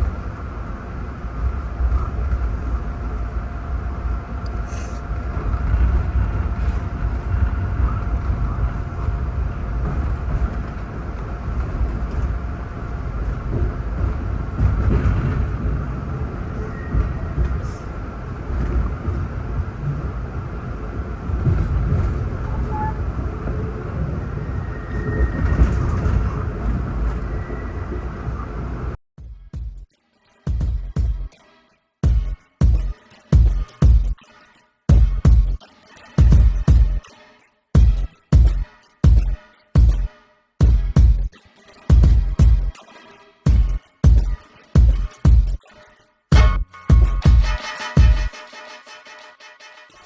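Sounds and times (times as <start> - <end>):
faint steady hum: 0.0 - 29.0
train rumble on track: 0.0 - 29.0.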